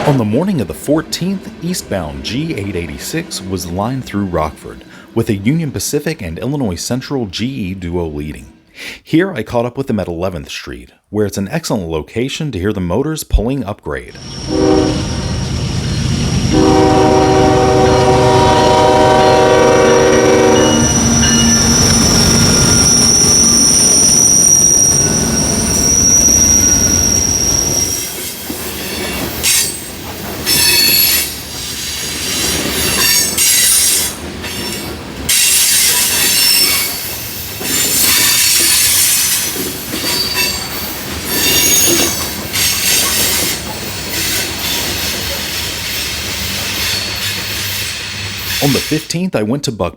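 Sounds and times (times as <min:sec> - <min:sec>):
train cars rattling on rails: 0:00.0 - 0:07.7, 0:14.2 - 0:49.1
train wheel squeal: 0:14.2 - 0:16.7, 0:17.8 - 0:48.9
locomotive horn blasts: 0:14.5 - 0:15.2, 0:16.5 - 0:21.8.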